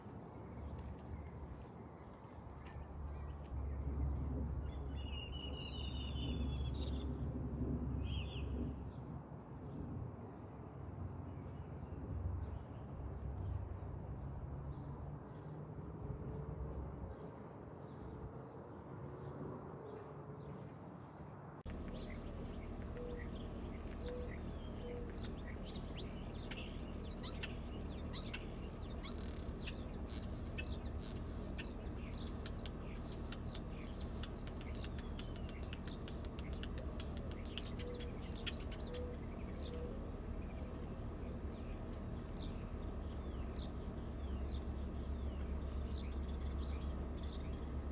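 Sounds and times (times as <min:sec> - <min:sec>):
birds chirping: 0:21.7 - 0:47.9.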